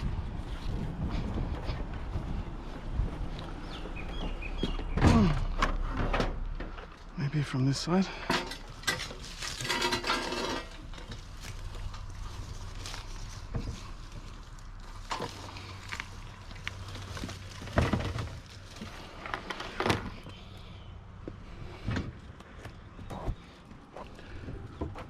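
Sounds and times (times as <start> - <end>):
steady low hum: 0.0 - 25.0
junk rattling and clattering: 4.7 - 7.1, 8.2 - 16.0, 16.8 - 20.3.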